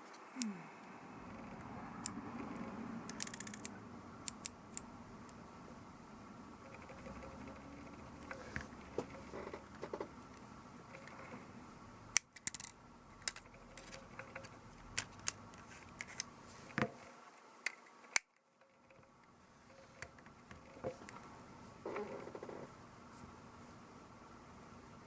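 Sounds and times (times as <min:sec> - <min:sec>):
tools clicking and tapping: 0:03.1 - 0:04.9.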